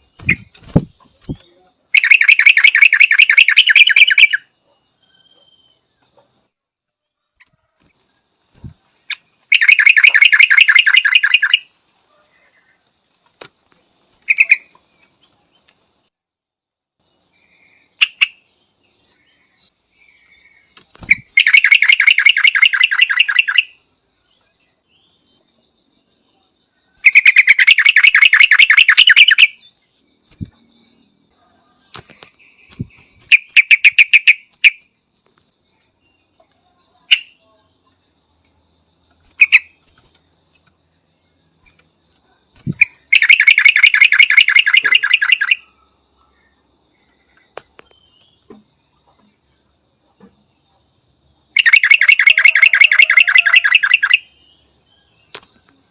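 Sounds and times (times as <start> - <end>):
bird chattering calls: 2.0 - 4.4, 9.1 - 11.6, 14.2 - 14.7, 21.0 - 23.7, 27.0 - 29.6, 32.7 - 34.8, 39.3 - 39.7, 42.6 - 45.6, 51.6 - 54.2.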